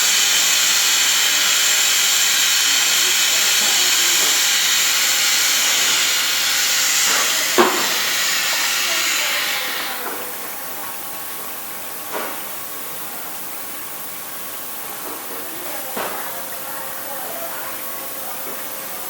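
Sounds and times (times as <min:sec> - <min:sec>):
wood sizzling in hot wax: 0:00.0 - 0:11.0.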